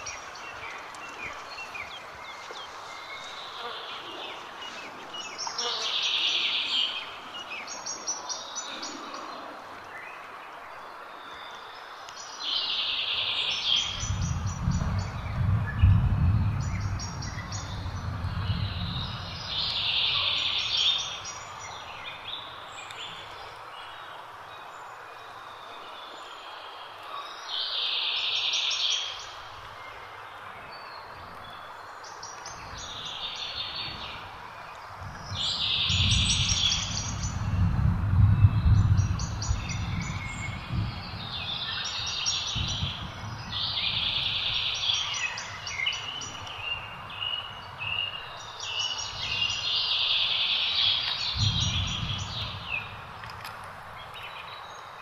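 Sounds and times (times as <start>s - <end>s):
songbird song phrase: 0.0s - 55.0s
low rumble: 14.0s - 19.5s, 35.9s - 41.4s.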